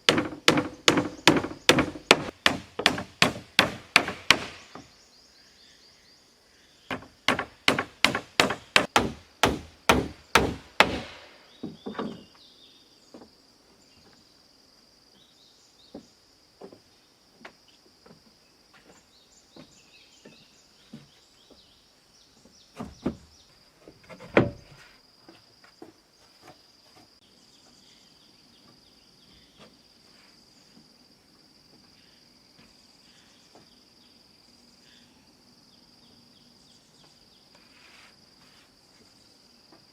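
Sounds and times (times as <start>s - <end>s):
hand tool chopping wood: 0.0s - 4.9s, 6.9s - 11.3s
insects droning: 0.0s - 39.9s.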